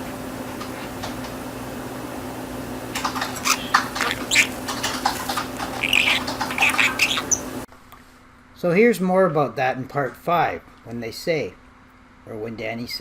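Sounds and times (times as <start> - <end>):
budgerigar chattering: 3.2 - 7.6.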